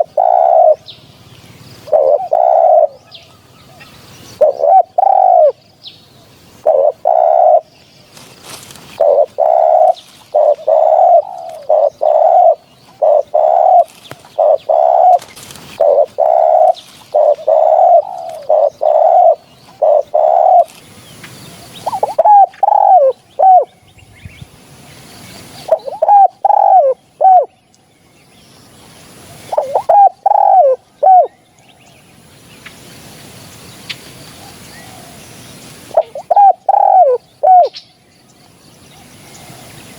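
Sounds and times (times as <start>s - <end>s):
doves cooing: 0.0s - 0.9s, 1.8s - 5.6s, 6.6s - 20.9s, 21.6s - 23.7s, 25.6s - 27.6s, 29.4s - 31.4s, 34.4s - 37.8s.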